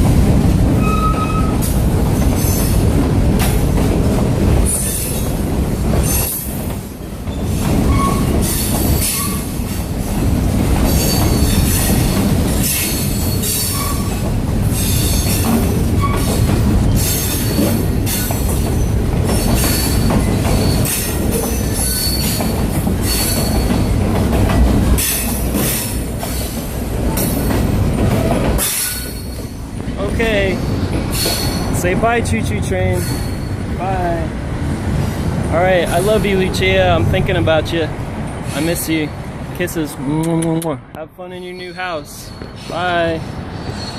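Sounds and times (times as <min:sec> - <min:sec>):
train wheels rumbling and clacking: 0:00.0 - 0:43.9
wheel squeal: 0:00.8 - 0:01.7, 0:07.3 - 0:09.5, 0:10.9 - 0:14.2, 0:14.8 - 0:18.3, 0:19.3 - 0:23.9, 0:28.6 - 0:29.6, 0:43.5 - 0:43.9.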